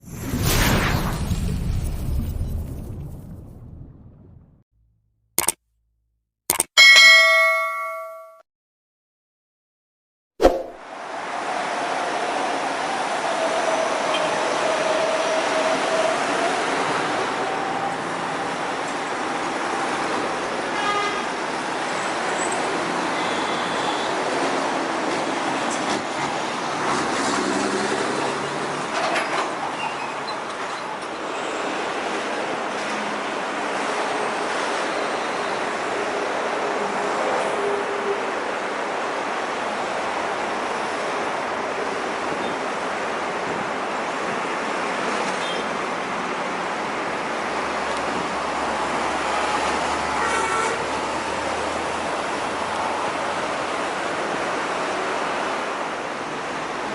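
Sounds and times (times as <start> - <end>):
passing trucks and cars: 10.8 - 38.2, 39.0 - 56.9
heavy highway traffic roar: 10.8 - 56.9.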